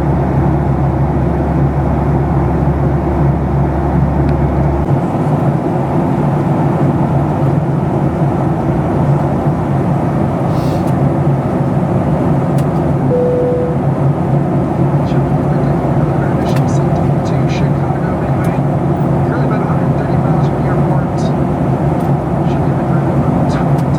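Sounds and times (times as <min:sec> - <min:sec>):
airplane cabin rumble: 0:00.0 - 0:23.9
brief cabin tone: 0:13.1 - 0:14.2.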